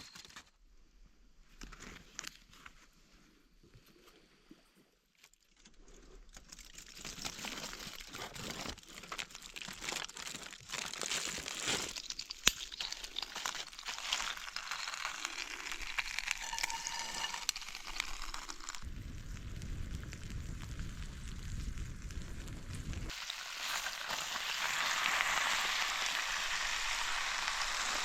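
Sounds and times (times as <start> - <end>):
dense crackling and crinkling: 0.0 - 28.0.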